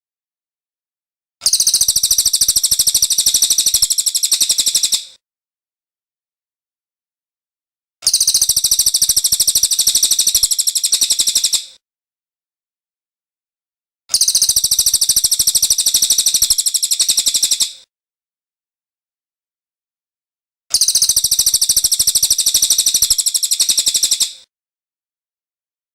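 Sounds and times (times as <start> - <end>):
songbird high-pitched trill: 1.4 - 5.1, 8.1 - 11.6, 14.1 - 17.7, 20.7 - 24.4.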